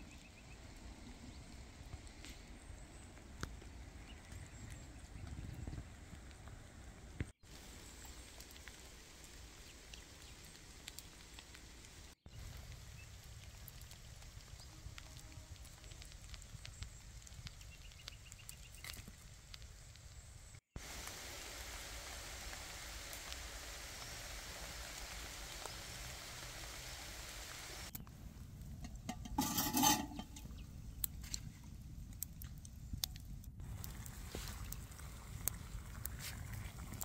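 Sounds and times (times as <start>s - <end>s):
rain dripping in a forest: 0.0s - 28.7s, 30.9s - 37.0s
campfire crackling: 0.0s - 37.0s
rain hissing on a tarp: 5.8s - 28.0s, 33.6s - 37.0s.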